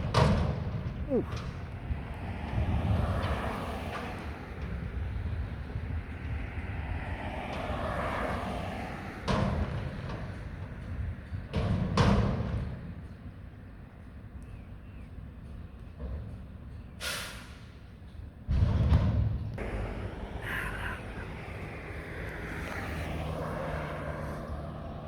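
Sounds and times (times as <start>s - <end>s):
garbage truck engine rumble: 19.6s - 25.0s.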